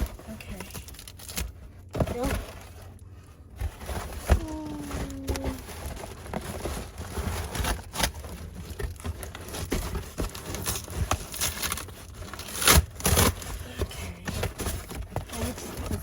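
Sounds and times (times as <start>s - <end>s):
package being torn open: 10.3s - 13.6s.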